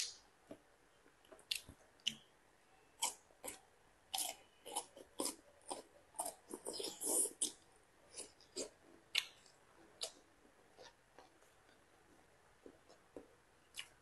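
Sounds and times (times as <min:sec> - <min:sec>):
crunchy chewing: 0:03.0 - 0:11.8.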